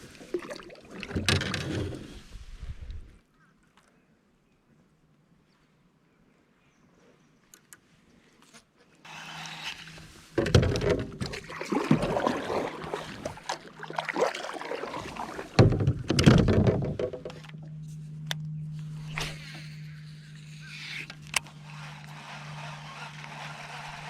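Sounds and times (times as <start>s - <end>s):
water splashing: 0.0s - 1.5s, 10.6s - 17.7s
steady low hum: 14.7s - 24.0s
knocks against kayak hull: 15.6s - 17.5s.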